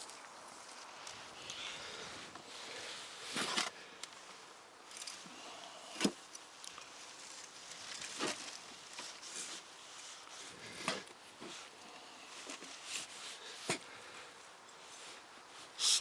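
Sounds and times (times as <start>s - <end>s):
hands sifting through soil: 4.9s - 14.0s.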